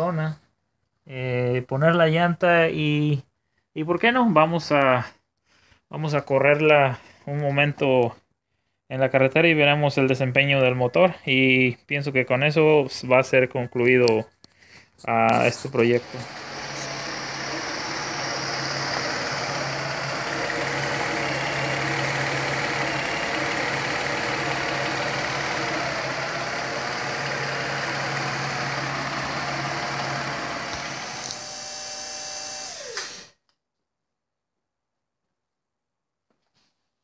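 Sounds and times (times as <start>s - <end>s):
car engine idling: 16.0s - 31.0s.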